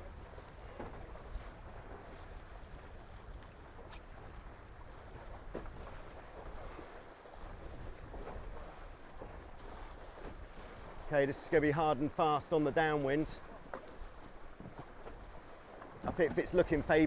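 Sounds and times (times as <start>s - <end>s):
wind buffeting microphone: 0.0s - 11.1s
water rushing along hulls: 0.0s - 17.0s.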